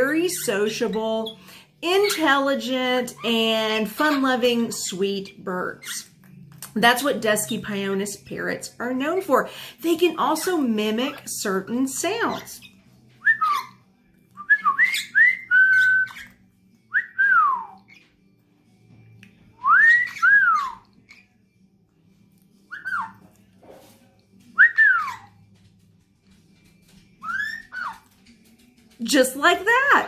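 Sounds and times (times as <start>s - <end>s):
parrot whistling: 12.3s - 13.8s, 14.4s - 18.0s, 19.6s - 21.4s, 22.7s - 23.2s, 24.6s - 25.4s, 27.2s - 28.1s.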